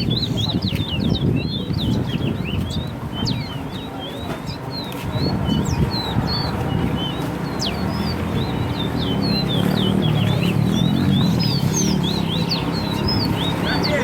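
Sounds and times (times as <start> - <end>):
songbirds chirping and whistling: 0.0 - 14.0.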